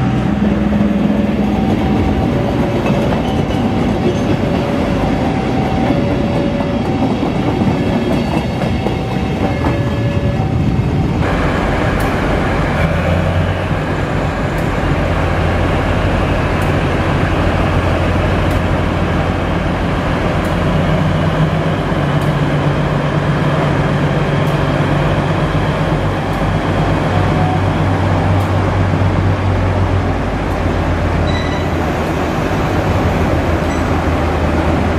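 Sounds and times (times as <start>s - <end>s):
diesel engine exhaust drone: 10.5s - 31.2s.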